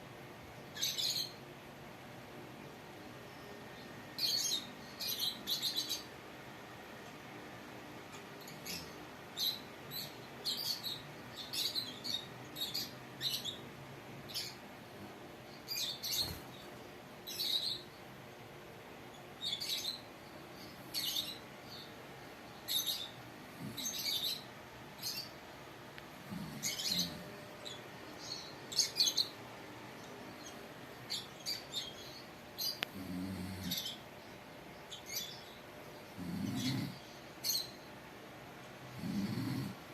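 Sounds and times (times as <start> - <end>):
lovebird chirping: 15.5 - 18.0, 19.1 - 25.4, 26.3 - 29.4.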